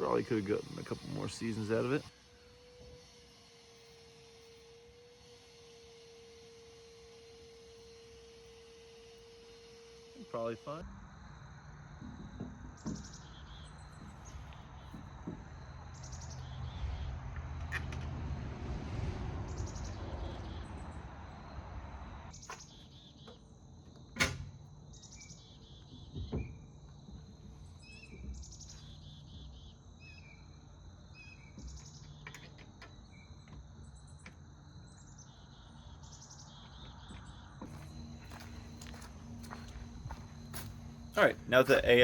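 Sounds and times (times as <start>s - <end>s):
birds chirping: 0.0s - 2.1s, 12.8s - 17.2s, 34.8s - 42.0s
insects trilling: 0.0s - 17.8s, 19.5s - 42.0s.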